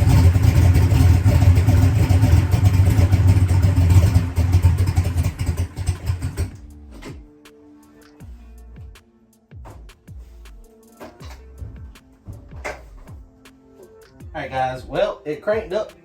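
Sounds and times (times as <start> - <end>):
race car engine idling: 0.0 - 6.6
music: 6.0 - 16.0.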